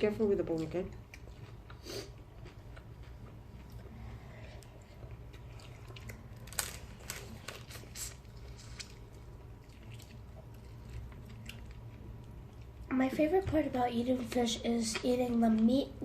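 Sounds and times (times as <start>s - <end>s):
chewing and crunching fried fish: 0.4s - 12.9s.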